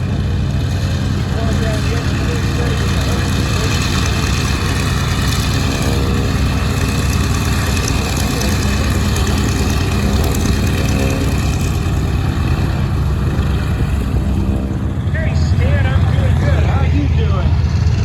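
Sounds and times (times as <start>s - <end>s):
piston aircraft engine drone: 0.0s - 18.0s.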